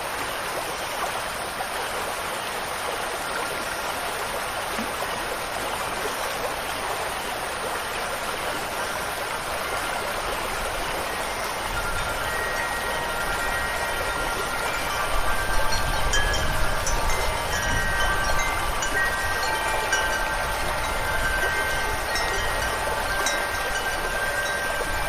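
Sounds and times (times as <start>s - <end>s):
stream water rushing: 0.0s - 25.0s
wind chime ringing: 8.9s - 25.0s.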